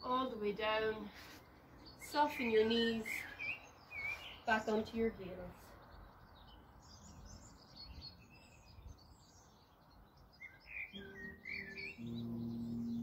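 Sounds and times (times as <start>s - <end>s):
songbirds chirping and trilling: 0.0s - 13.0s
soft background music: 11.0s - 13.0s.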